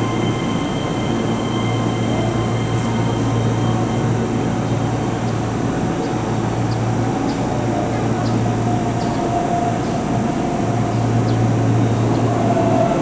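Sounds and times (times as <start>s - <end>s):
faint high whining tones: 0.0s - 7.0s
electric train low drone: 0.0s - 13.0s.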